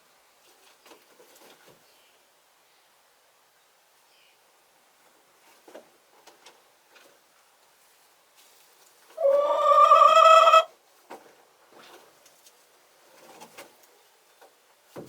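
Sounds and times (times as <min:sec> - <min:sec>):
chicken calling: 0:09.1 - 0:10.8.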